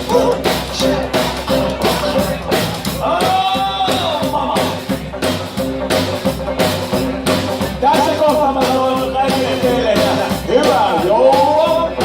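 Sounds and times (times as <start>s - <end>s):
rockabilly band playing live: 0.0s - 12.0s
steady drum beat: 0.0s - 12.0s.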